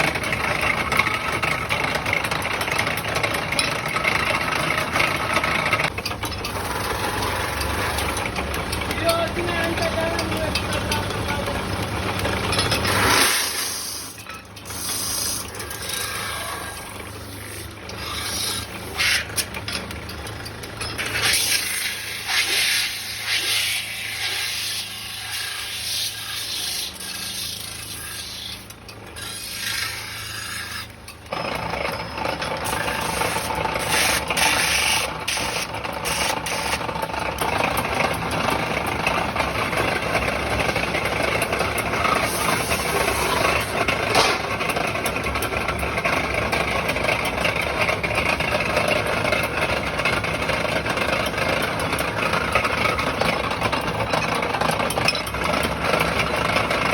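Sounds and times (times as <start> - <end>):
lathe motor low hum: 0.0 - 26.5
tool scraping spinning sheet metal: 0.0 - 56.9.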